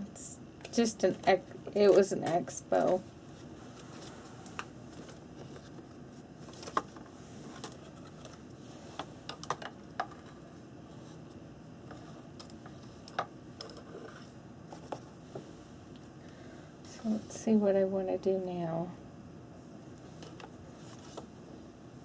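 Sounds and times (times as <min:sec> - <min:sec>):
faint room hum: 0:00.0 - 0:22.0
art supplies clicking on desk: 0:09.2 - 0:10.4, 0:11.9 - 0:15.1.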